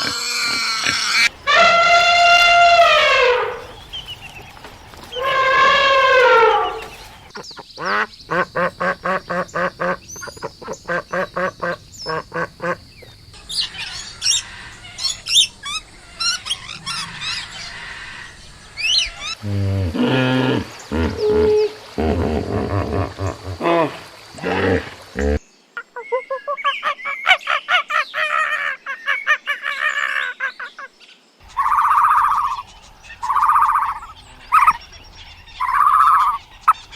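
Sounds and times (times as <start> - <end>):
short harsh calls: 0.0 - 4.0, 5.1 - 7.3
long calls dropping in pitch: 1.1 - 3.8, 5.1 - 7.0, 31.5 - 32.6, 33.2 - 34.8, 35.6 - 36.6
high chirps: 31.4 - 36.9.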